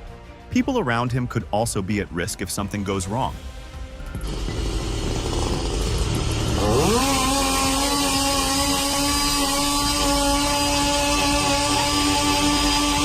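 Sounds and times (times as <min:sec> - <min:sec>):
chainsaw revving: 0:04.2 - 0:13.0.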